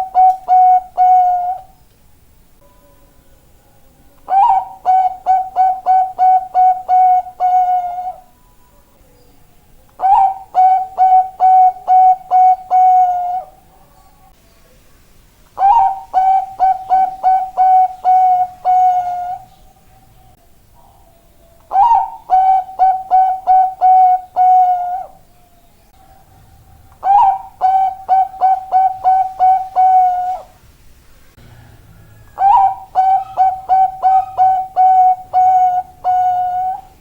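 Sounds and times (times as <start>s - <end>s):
dove cooing: 0.0s - 1.8s, 4.2s - 8.3s, 10.0s - 14.2s, 15.6s - 19.6s, 20.8s - 30.6s, 31.5s - 37.0s.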